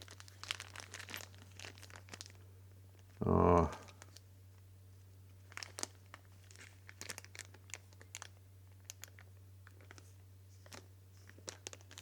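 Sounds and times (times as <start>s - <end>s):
plastic package crinkling: 0.0s - 2.4s, 5.5s - 10.0s, 10.6s - 12.0s.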